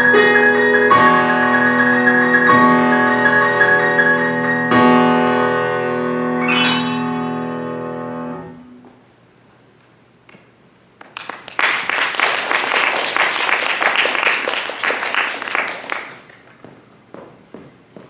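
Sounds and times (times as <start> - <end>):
piano chord: 0.0 - 8.8
audience applause: 11.0 - 16.5.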